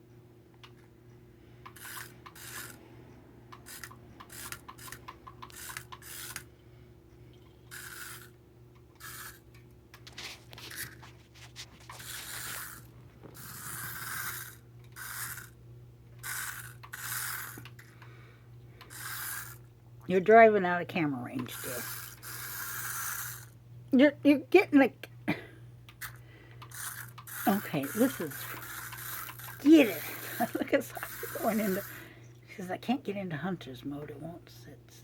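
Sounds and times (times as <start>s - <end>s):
steady low hum: 0.0s - 35.0s
toy car wheels scraping and rattling: 1.7s - 2.8s, 3.5s - 6.5s, 7.7s - 15.6s, 16.2s - 18.0s, 18.8s - 19.7s, 21.4s - 23.6s, 26.0s - 32.0s.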